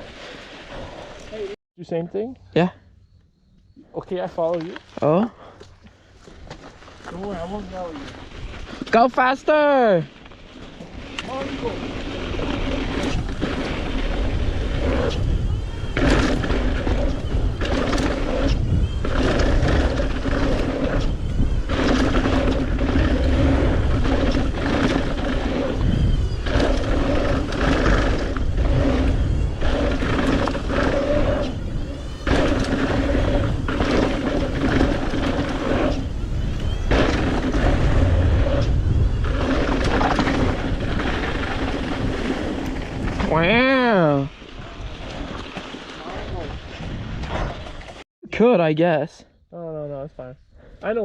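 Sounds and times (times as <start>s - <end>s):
bike tyres rolling hum: 3.2s - 48.0s
wind rush on microphone: 10.6s - 48.0s.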